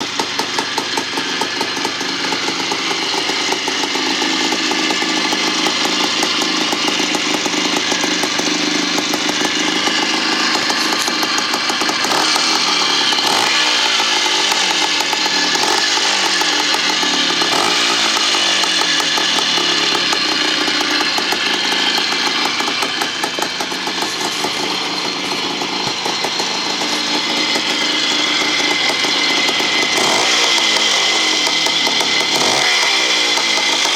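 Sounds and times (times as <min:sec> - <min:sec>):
two-stroke motorcycle engine revving: 0:00.0 - 0:33.9.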